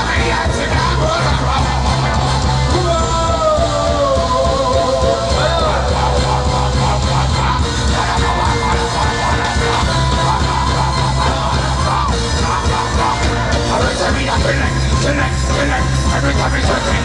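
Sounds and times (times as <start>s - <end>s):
loud music with heavy bass beat: 0.0s - 17.0s
person singing and shouting: 0.0s - 17.0s.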